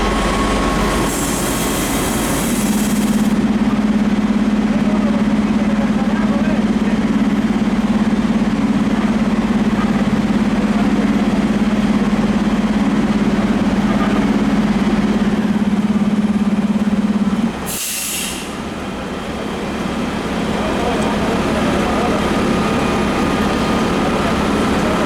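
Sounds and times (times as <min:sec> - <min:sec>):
diesel engine droning: 0:00.0 - 0:25.0
air brakes hiss: 0:01.0 - 0:03.3, 0:17.7 - 0:18.7.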